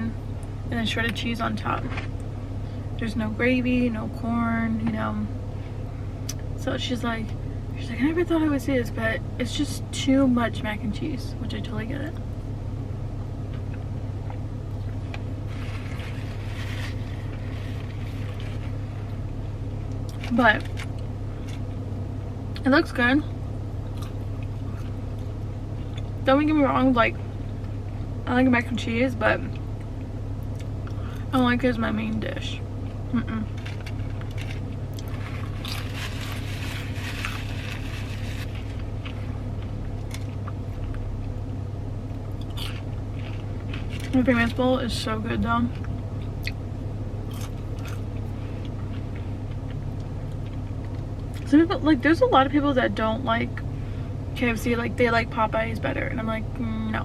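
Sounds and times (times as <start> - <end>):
car idling hum: 0.0 - 57.0
person chewing crunchy food: 14.3 - 19.3, 33.5 - 41.1, 42.2 - 44.2, 47.2 - 51.4
soft rustle: 14.9 - 19.2, 33.5 - 40.3.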